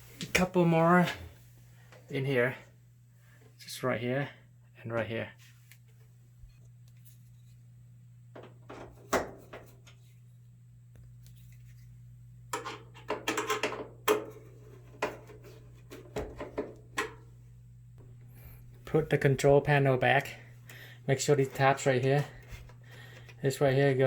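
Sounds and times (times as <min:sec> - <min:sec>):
steady low hum: 0:00.0 - 0:24.0
metal panels knocking and clattering: 0:12.6 - 0:14.4.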